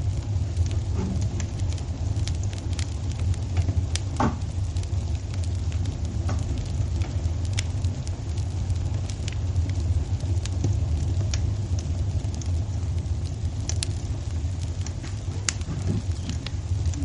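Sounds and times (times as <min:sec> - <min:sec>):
low rumble: 0:00.0 - 0:17.0
wood fire crackling: 0:00.0 - 0:17.0.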